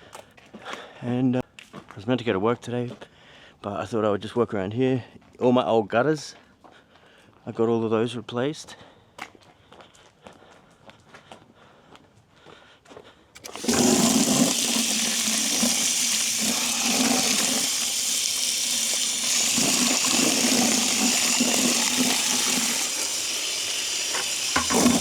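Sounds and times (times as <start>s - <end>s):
tap water splashing into bucket: 13.4s - 25.0s.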